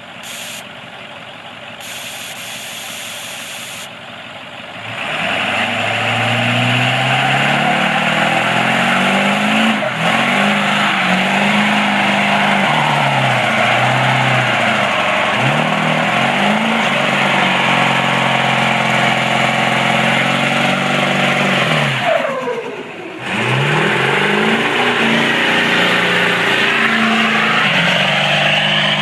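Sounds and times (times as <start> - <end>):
diesel truck engine revving: 0.0 - 29.0
spinning tyres rushing: 0.0 - 29.0
short bursts of hiss: 0.2 - 0.7, 1.8 - 3.9.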